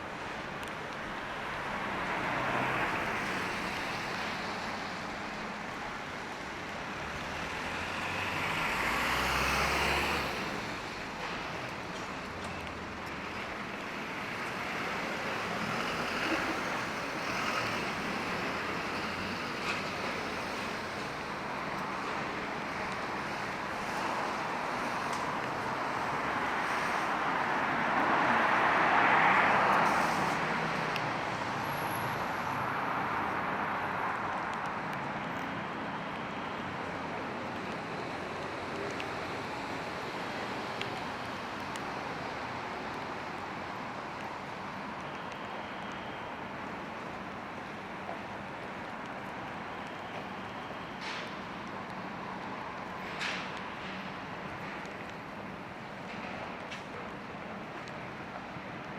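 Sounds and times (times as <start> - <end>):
vehicles passing on wet road: 0.0 - 58.9
rain hiss: 0.1 - 32.6.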